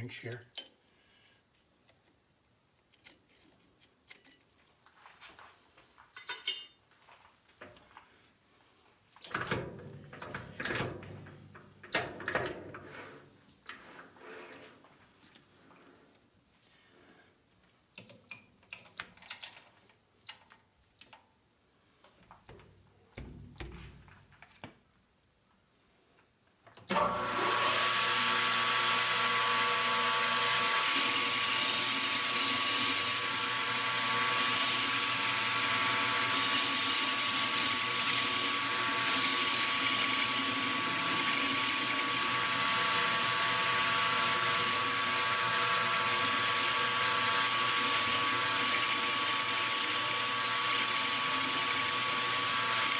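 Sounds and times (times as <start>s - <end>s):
clicks and knocks of handling: 17.9s - 21.3s
metal lathe whining: 26.9s - 52.9s.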